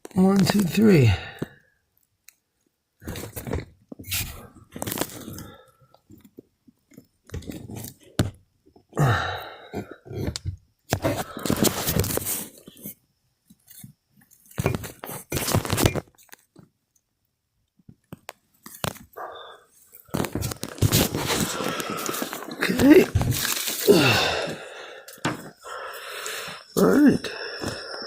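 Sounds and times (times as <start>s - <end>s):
rustling and crunching: 3.0s - 8.4s, 9.9s - 16.7s, 19.8s - 25.6s.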